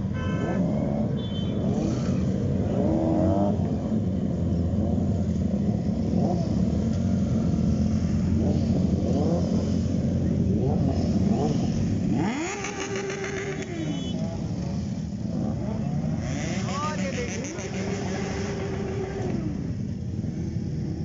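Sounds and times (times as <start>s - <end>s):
horn toot: 0.0s - 2.0s.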